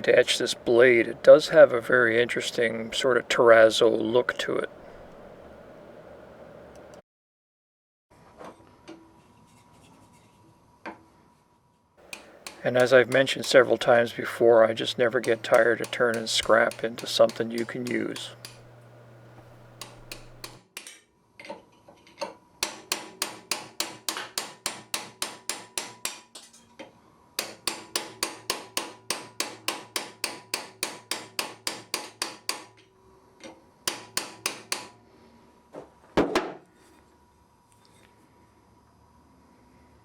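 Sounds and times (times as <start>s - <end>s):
hammer striking an anvil: 12.1s - 18.7s, 19.8s - 20.9s, 22.6s - 26.3s, 27.4s - 32.8s, 33.9s - 35.0s.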